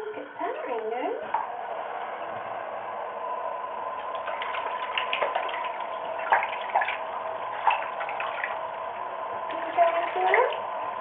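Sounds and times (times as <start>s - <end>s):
tap water running: 3.7s - 11.0s
parrot splashing in water: 4.0s - 8.6s.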